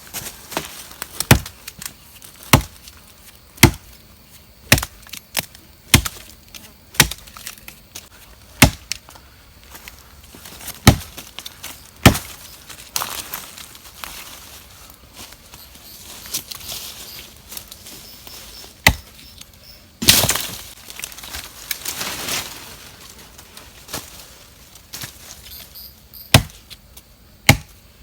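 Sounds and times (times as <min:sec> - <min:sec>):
blade chopping into wood: 0:01.2 - 0:01.5, 0:02.5 - 0:02.7, 0:03.6 - 0:03.9, 0:04.7 - 0:06.2, 0:07.0 - 0:07.3, 0:08.6 - 0:09.0, 0:10.8 - 0:11.1, 0:12.0 - 0:12.3, 0:18.9 - 0:19.1, 0:26.3 - 0:26.6, 0:27.5 - 0:27.8.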